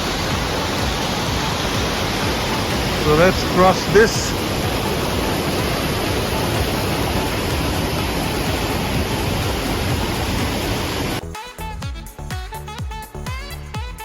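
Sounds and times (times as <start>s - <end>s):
waterfall roaring over rocks: 0.0s - 11.2s
background music with beat: 0.0s - 14.0s.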